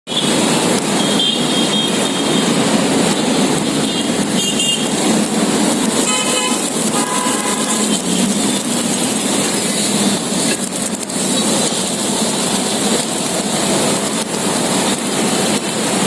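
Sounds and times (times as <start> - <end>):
street traffic: 0.1 - 16.0
vehicle horn tooting: 3.8 - 5.0, 6.0 - 8.3.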